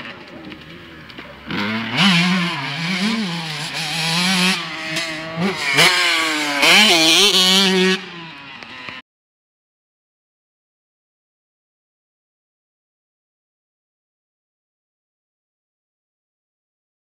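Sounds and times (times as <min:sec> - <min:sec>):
motocross bike revving: 0:00.1 - 0:09.0.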